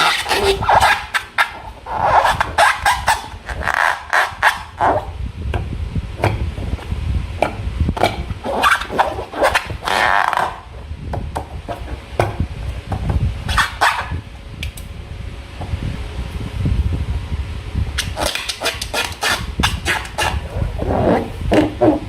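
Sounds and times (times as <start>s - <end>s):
low handling rumble: 4.7s - 13.5s, 14.1s - 18.0s, 19.4s - 22.0s.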